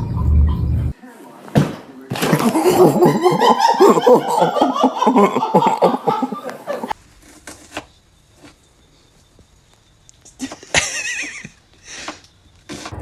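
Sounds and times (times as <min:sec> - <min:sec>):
person laughing heartily: 0:02.4 - 0:07.0, 0:10.2 - 0:12.0.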